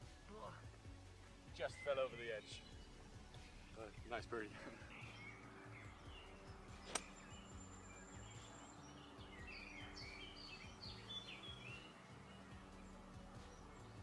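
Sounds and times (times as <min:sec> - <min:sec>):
faint bird chirps: 0:01.6 - 0:14.0
sharp click: 0:06.9 - 0:07.1.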